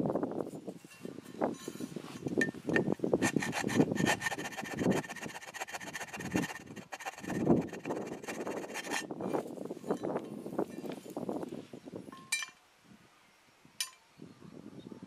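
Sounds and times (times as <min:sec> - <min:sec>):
hand abrasive rasping: 0:02.7 - 0:09.1.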